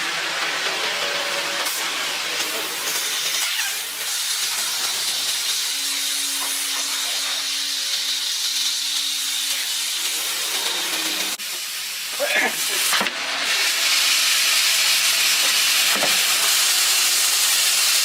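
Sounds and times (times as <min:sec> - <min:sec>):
compressed air hissing: 0:01.6 - 0:12.9.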